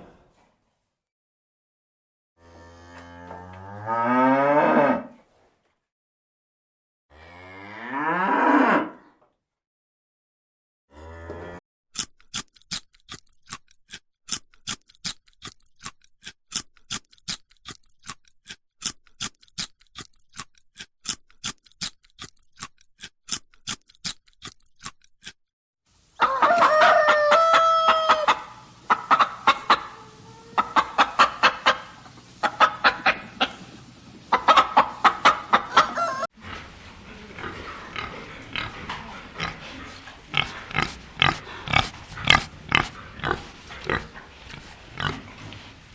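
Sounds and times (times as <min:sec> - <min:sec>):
pigs grunting: 0:35.3 - 0:45.9
drawn-out animal call: 0:35.7 - 0:45.9.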